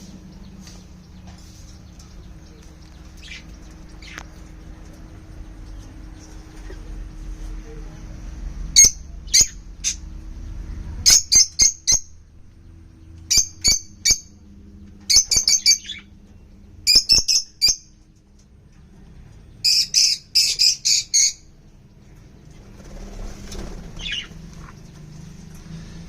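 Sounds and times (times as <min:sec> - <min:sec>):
parrots chirping shrilly: 0:08.8 - 0:10.0, 0:11.0 - 0:12.1, 0:15.1 - 0:16.1, 0:19.6 - 0:21.5, 0:24.0 - 0:24.4.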